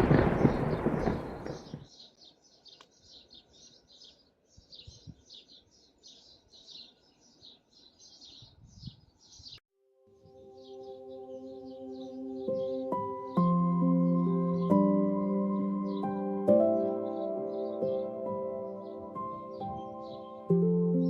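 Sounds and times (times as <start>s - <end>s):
thunder rumbling: 0.0s - 1.9s
small birds chirping: 0.0s - 9.6s, 10.2s - 21.0s.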